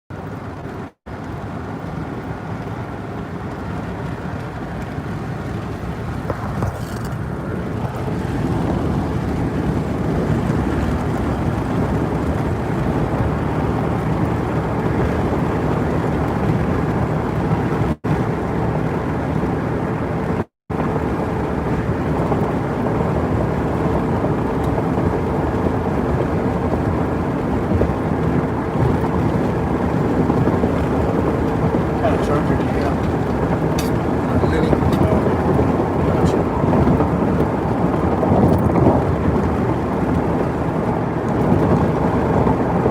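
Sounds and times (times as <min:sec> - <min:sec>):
car driving road noise: 0:00.1 - 0:42.9.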